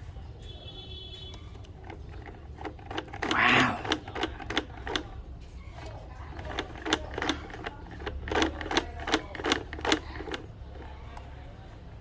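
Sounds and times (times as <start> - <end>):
plastic toy clicks and knocks: 1.5 - 11.0.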